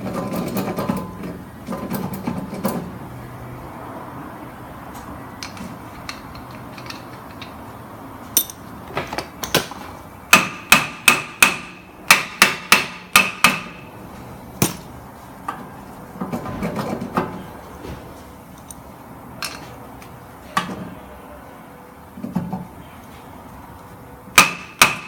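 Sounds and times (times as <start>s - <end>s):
hammer striking metal: 8.4s - 8.6s, 10.3s - 13.9s, 24.4s - 25.0s.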